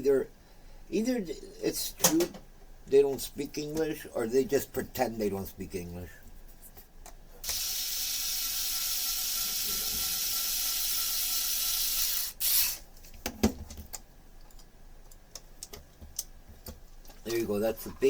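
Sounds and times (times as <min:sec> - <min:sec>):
steady hiss with faint whine: 0:00.0 - 0:18.0.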